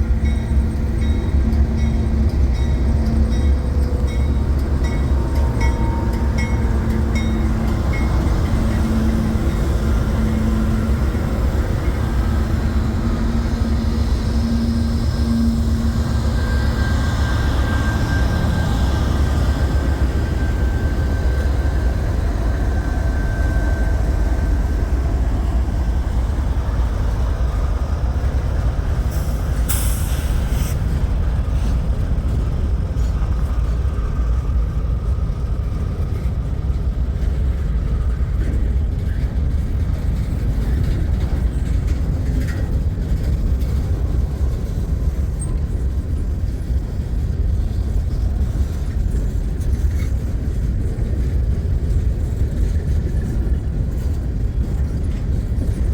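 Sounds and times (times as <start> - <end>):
train wheels rumbling on rail: 0.0 - 55.9
brief hiss: 29.2 - 30.8.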